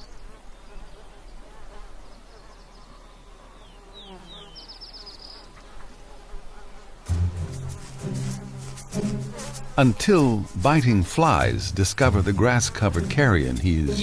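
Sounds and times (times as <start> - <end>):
flies buzzing: 0.0 - 14.0
music: 7.1 - 10.4, 11.3 - 14.0.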